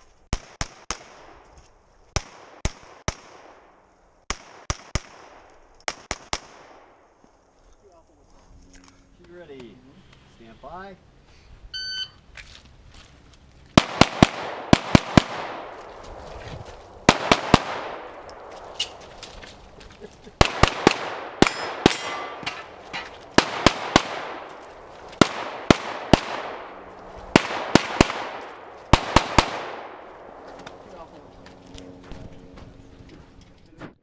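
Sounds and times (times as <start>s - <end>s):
pistol shots echoing: 13.8s - 15.9s, 17.1s - 19.0s, 20.4s - 30.5s.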